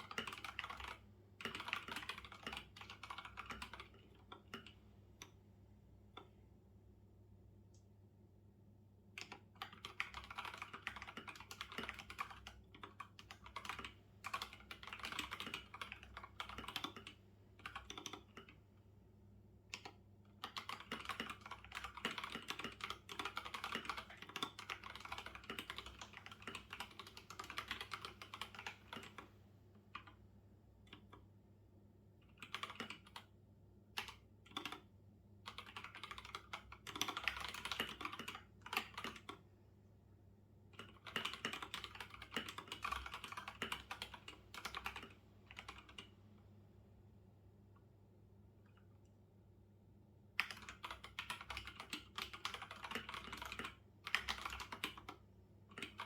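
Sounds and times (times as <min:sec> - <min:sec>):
typing on computer keyboard: 0:00.0 - 0:05.4, 0:09.2 - 0:18.6, 0:19.7 - 0:29.3, 0:29.9 - 0:30.2, 0:30.9 - 0:31.3, 0:32.2 - 0:33.4, 0:34.0 - 0:39.4, 0:40.8 - 0:46.1, 0:50.4 - 0:56.0.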